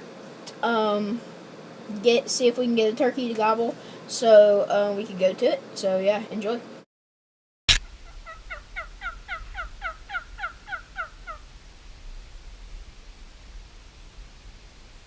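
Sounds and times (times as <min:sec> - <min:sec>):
turkey yelping: 0:08.0 - 0:11.4.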